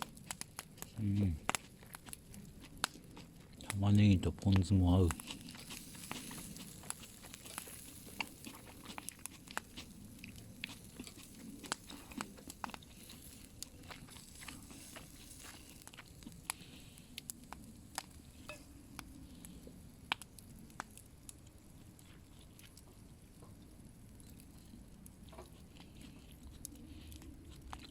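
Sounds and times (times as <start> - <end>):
campfire crackling and popping: 0.0 - 27.9
food sizzling: 4.0 - 16.8.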